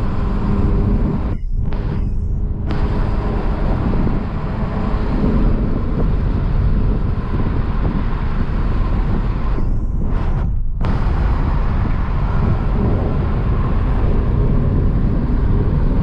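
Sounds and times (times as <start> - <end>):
car driving: 0.0 - 16.0.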